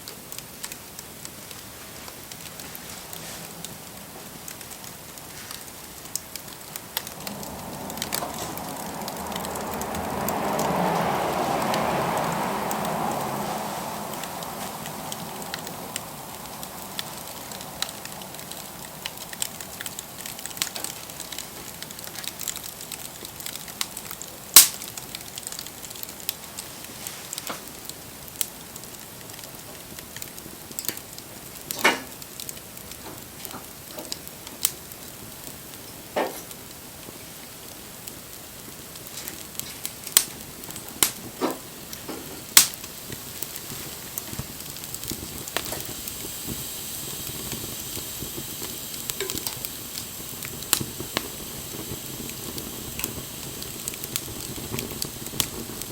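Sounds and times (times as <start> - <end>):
wood fire crackling: 0.0 - 55.9
rushing noise: 6.7 - 20.1
loud sharp pop: 24.6 - 24.8.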